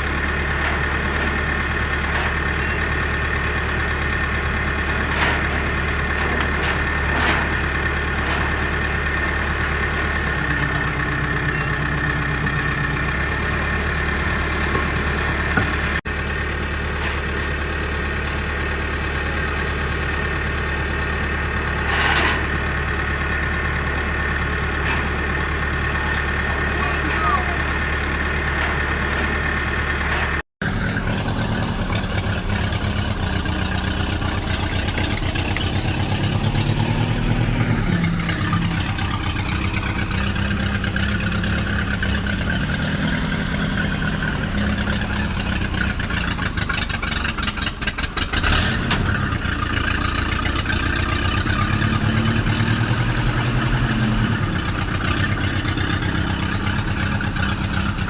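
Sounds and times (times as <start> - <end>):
vehicle engine revving: 27.8 - 58.0.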